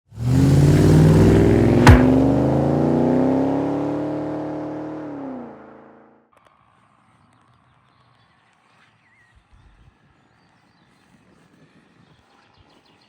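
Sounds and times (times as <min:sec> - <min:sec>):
car engine revving hard: 0:00.1 - 0:06.1
sharp crack: 0:01.3 - 0:02.6.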